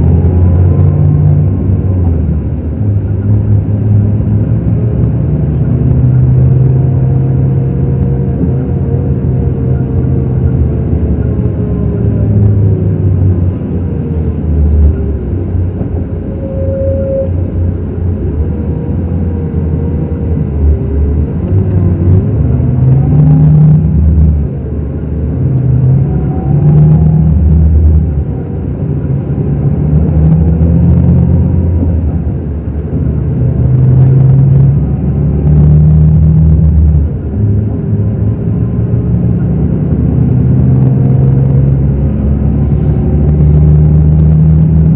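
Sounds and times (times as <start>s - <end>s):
diesel coach engine rumbling: 0.0s - 44.9s.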